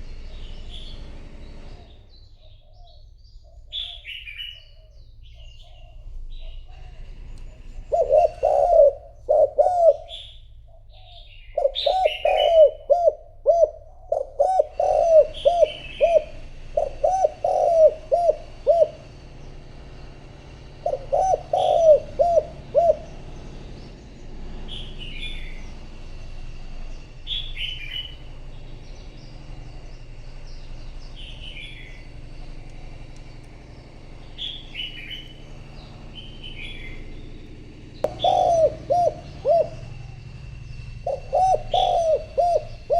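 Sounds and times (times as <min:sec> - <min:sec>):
dove cooing: 0:02.4 - 0:24.0, 0:31.1 - 0:42.9
bird high falling chirps: 0:38.1 - 0:42.9.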